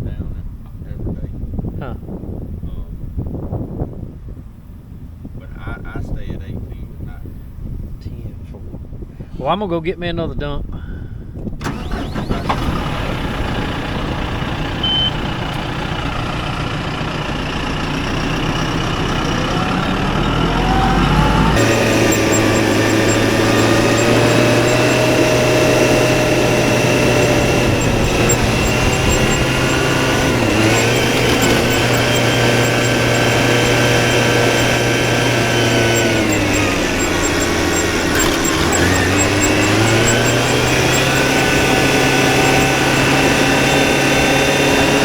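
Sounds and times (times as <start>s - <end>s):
farm machinery engine running: 11.6s - 45.0s
steady whine: 19.2s - 45.0s.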